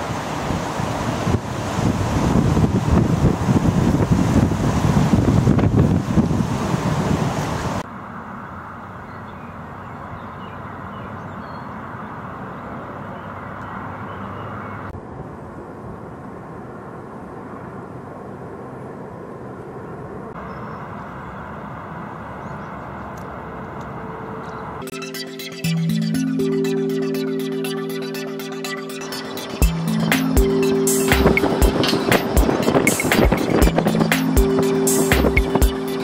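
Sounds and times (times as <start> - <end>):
wind buffeting microphone: 0.0 - 7.8, 31.3 - 34.6.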